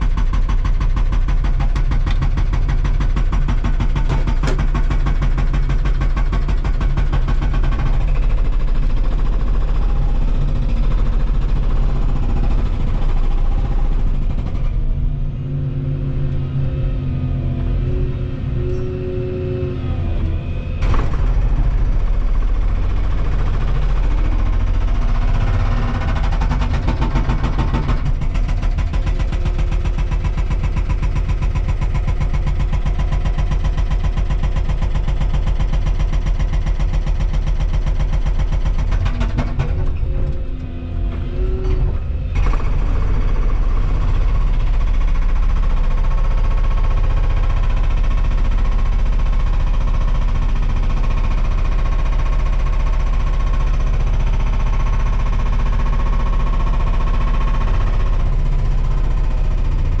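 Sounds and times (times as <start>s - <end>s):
excavator diesel engine and hydraulics: 0.0s - 60.0s.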